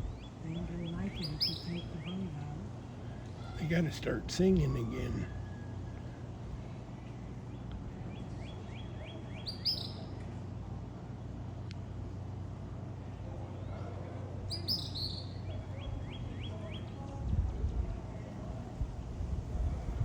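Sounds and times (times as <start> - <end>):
small songbird singing: 0.0 - 4.9, 7.0 - 10.2, 14.5 - 17.2
steady low hum: 0.0 - 20.0.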